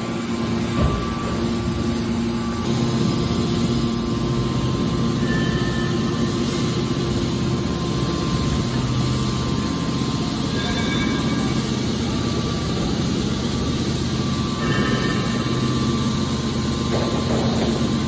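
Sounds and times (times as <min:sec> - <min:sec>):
baler machine hum: 0:00.0 - 0:18.0.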